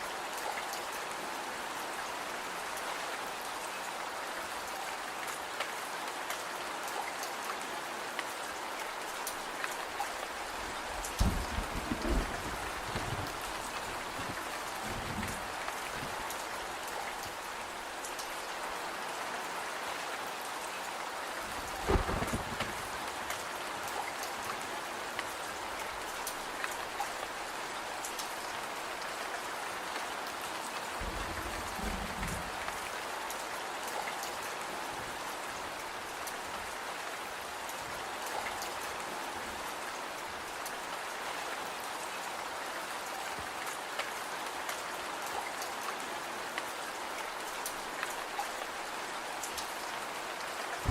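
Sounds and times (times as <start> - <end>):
rain falling on a surface: 0.0 - 50.9
wood fire crackling and popping: 21.6 - 23.4.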